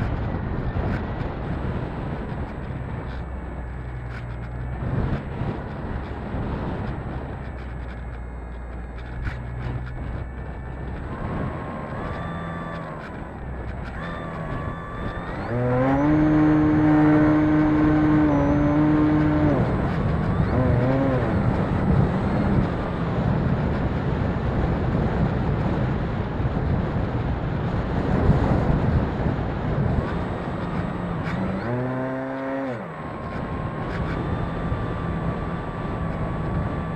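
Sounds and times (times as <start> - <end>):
model airplane motor whining: 0.0 - 25.8, 28.1 - 36.9
wind noise on microphone: 0.0 - 36.9.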